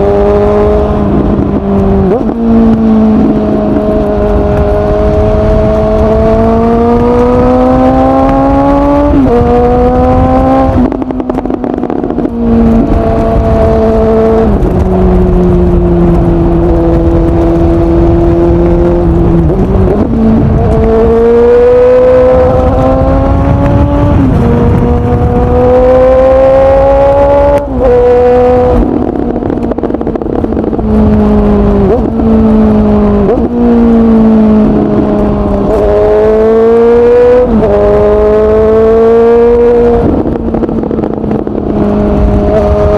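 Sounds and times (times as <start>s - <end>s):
motorcycle engine revving through gears: 0.0s - 42.9s.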